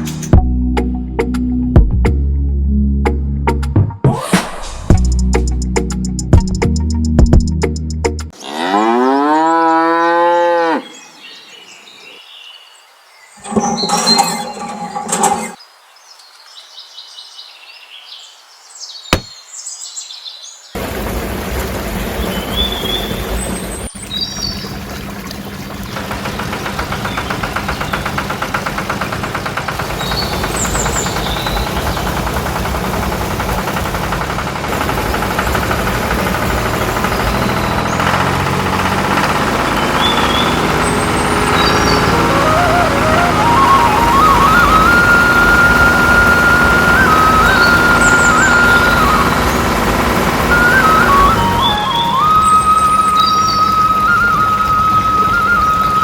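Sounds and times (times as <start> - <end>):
birds chirping: 8.3 - 20.8, 22.1 - 34.6, 36.6 - 56.0
cow mooing: 8.4 - 11.0
steady machine noise: 25.9 - 56.0.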